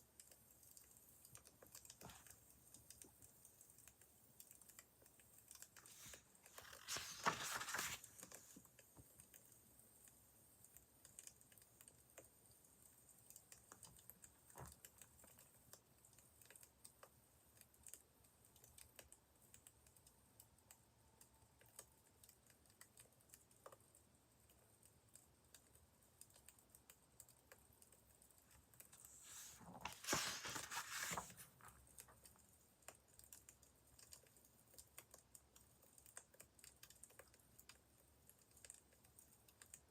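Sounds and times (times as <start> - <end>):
rustling: 5.8 - 8.6, 29.0 - 32.1.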